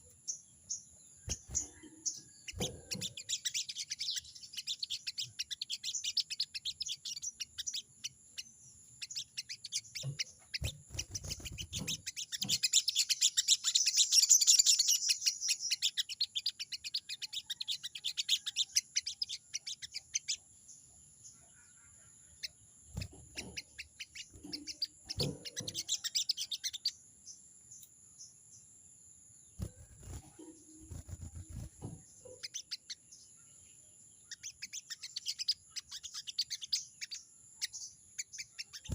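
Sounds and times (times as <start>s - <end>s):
bird harsh rapid chatter: 1.3s - 7.9s, 9.0s - 20.4s, 22.9s - 26.9s, 38.4s - 38.9s.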